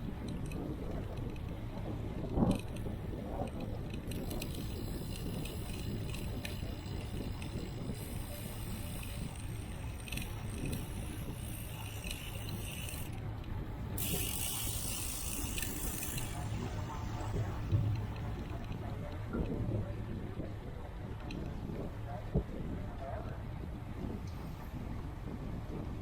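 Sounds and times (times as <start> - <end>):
wind and road noise: 0.0 - 26.0
bicycle freewheel ticking: 2.6 - 13.2, 13.8 - 18.8.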